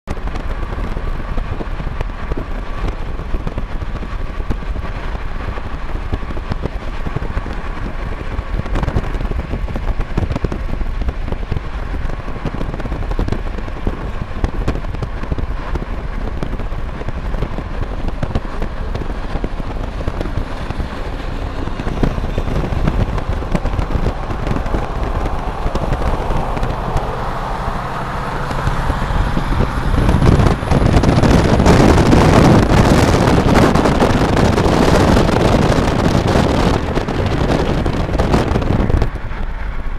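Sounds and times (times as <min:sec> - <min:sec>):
low diesel engine drone: 0:00.1 - 0:39.9
freight train cars rattling past: 0:18.4 - 0:32.8.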